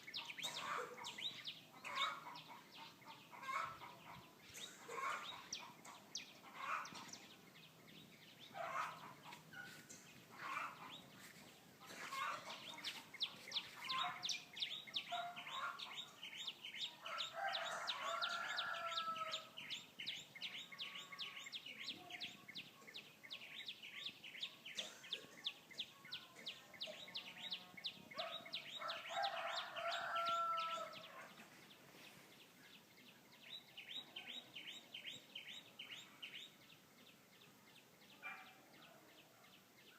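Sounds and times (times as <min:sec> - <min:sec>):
songbirds chirping: 0:00.0 - 0:39.9
rooster crowing: 0:17.2 - 0:19.4, 0:28.9 - 0:31.0.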